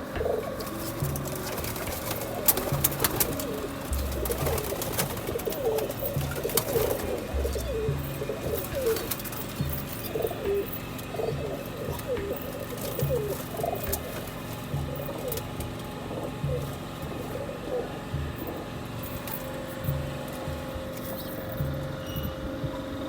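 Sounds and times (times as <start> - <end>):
chatter of short pigeon calls: 0.0 - 23.0
pigeons cooing: 0.0 - 23.0.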